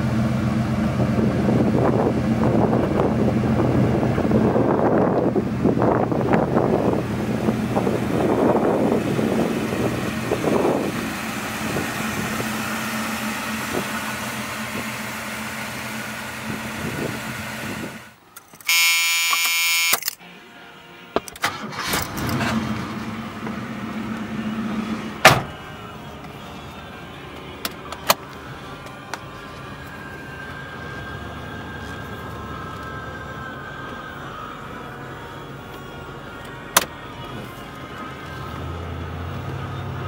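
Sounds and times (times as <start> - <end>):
car engine idling: 0.0 - 19.1, 20.6 - 40.0
warning buzzer: 18.6 - 20.0.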